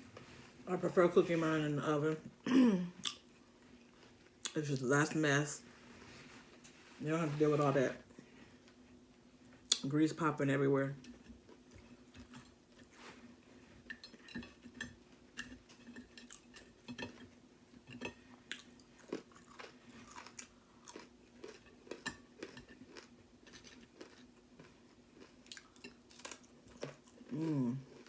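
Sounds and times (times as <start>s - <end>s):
faint steady hum: 0.0s - 28.0s
person chewing food: 11.1s - 28.0s.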